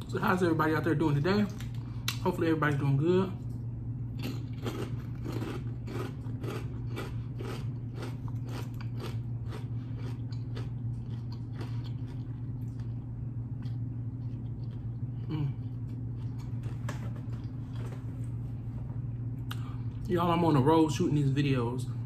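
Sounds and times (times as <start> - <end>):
steady low hum: 0.0 - 22.0
chewing crunchy potato chips: 3.4 - 18.1.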